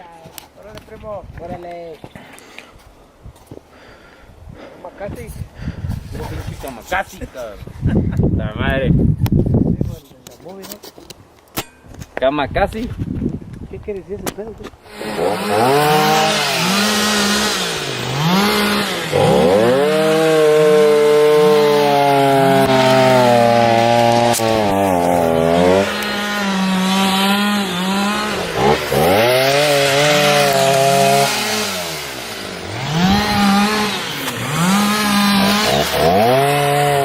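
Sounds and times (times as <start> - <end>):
chainsaw running at high revs: 14.8 - 37.0.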